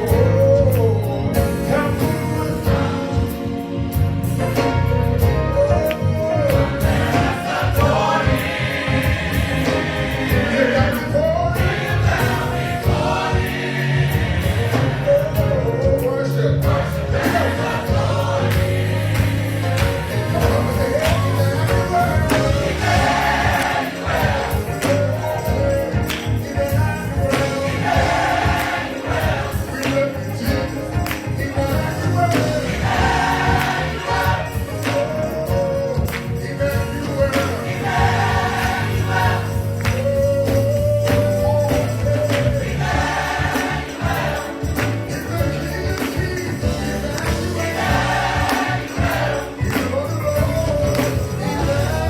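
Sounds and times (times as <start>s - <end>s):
bass line: 0.0s - 52.0s
gospel choir singing: 0.0s - 52.0s
drum strokes: 6.5s - 15.5s, 16.6s - 35.5s, 36.7s - 52.0s.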